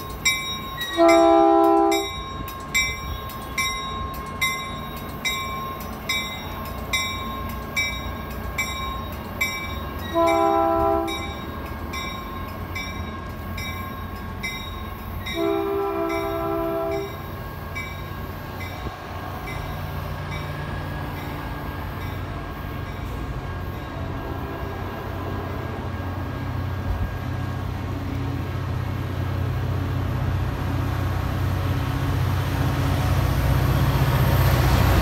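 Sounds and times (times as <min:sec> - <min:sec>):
train bell dinging: 0:00.0 - 0:24.8
locomotive rumble: 0:00.0 - 0:35.0
multi-chime air horn: 0:00.8 - 0:02.4, 0:10.0 - 0:11.5, 0:15.2 - 0:17.3.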